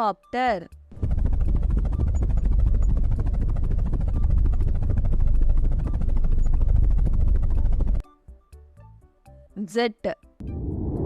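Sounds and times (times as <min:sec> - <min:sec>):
helicopter rotor chopping: 0:00.9 - 0:08.0.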